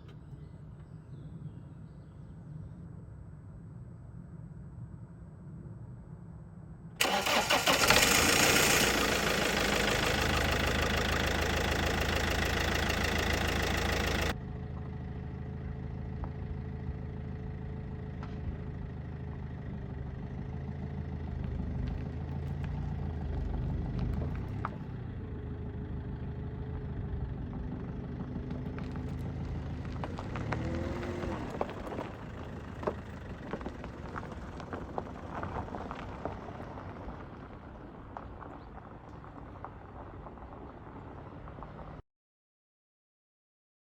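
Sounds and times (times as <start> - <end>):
quiet steady engine hum: 0.0 - 42.0
vehicle engine running loud: 7.0 - 36.4.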